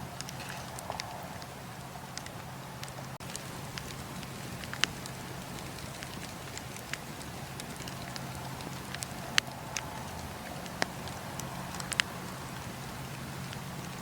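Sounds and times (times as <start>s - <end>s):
campfire wood crackling and popping: 0.0s - 14.0s
fire low hiss: 0.0s - 14.0s.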